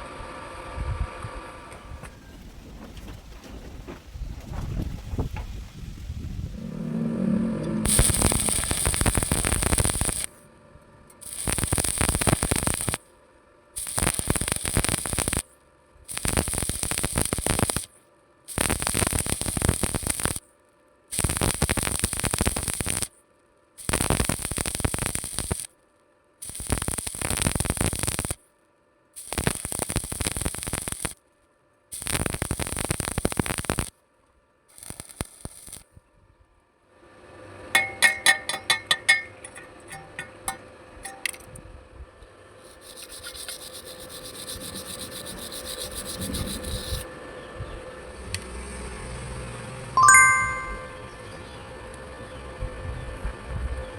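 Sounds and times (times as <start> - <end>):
arc welding crackling and hissing: 7.9 - 10.4, 11.1 - 13.1, 13.8 - 20.5, 21.1 - 23.2, 23.8 - 25.8, 26.4 - 28.5, 29.1 - 31.3, 31.9 - 34.0, 34.7 - 36.0, 42.6 - 47.1.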